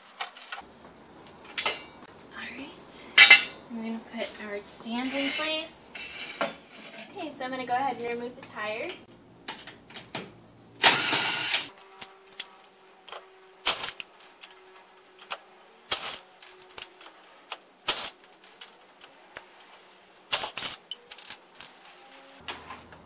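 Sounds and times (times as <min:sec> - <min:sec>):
metal clanks: 0:01.4 - 0:02.1, 0:03.2 - 0:03.6.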